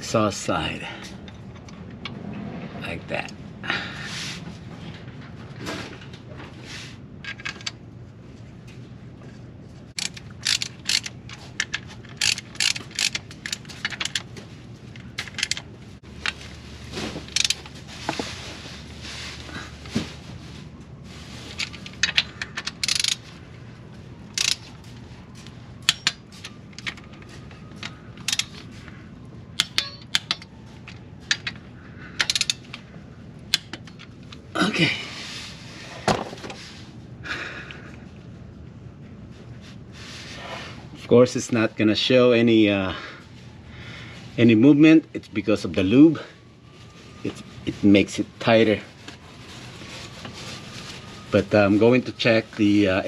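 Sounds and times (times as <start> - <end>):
metallic clicks of tools: 10.0 - 14.3, 21.6 - 23.2, 24.3 - 24.7, 25.8 - 28.7, 29.6 - 31.6, 32.2 - 32.8.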